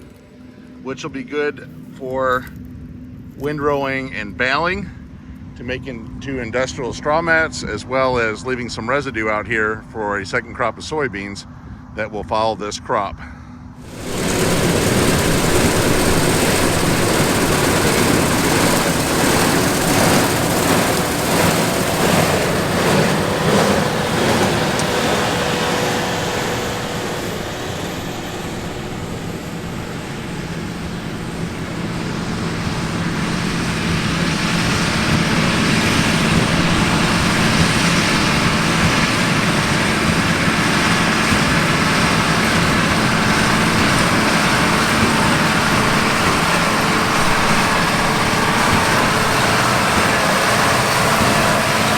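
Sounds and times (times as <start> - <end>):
combine harvester running: 13.8 - 51.9.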